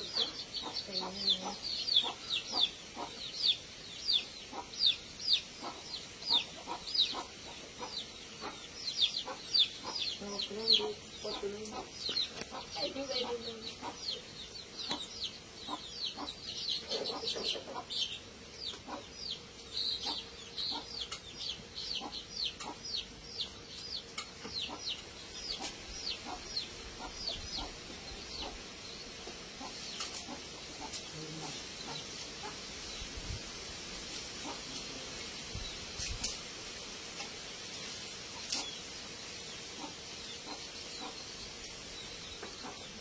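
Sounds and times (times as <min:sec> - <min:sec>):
bird chirping: 0:00.0 - 0:33.0.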